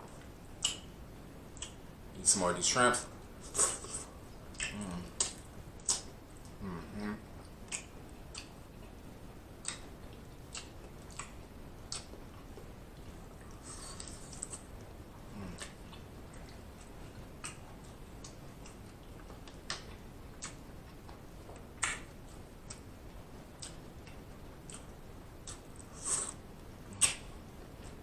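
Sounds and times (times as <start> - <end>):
mouth clicks and smacks: 0.2 - 0.9, 1.5 - 1.8, 3.5 - 6.6, 7.4 - 8.6, 9.6 - 22.9, 23.6 - 28.0
wet chewing: 3.5 - 6.6, 7.4 - 9.0, 9.6 - 22.9.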